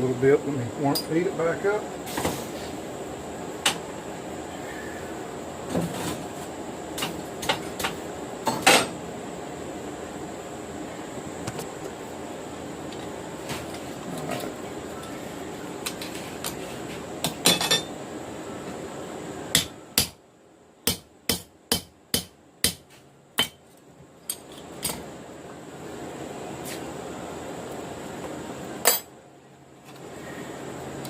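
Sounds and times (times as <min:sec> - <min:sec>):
hammer striking hot steel on anvil: 0:19.5 - 0:20.2, 0:20.8 - 0:22.8, 0:23.4 - 0:23.6.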